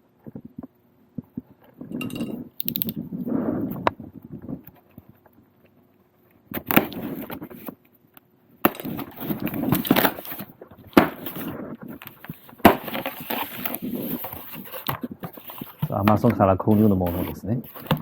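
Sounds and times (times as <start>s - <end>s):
sharp clicks: 2.6s - 3.0s
rustling and scraping: 8.7s - 18.0s.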